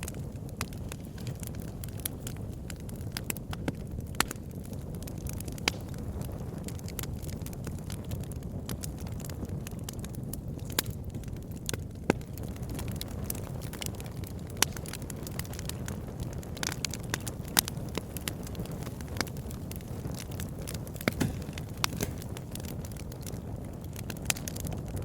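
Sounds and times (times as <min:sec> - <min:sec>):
campfire crackling and popping: 0:00.0 - 0:25.0.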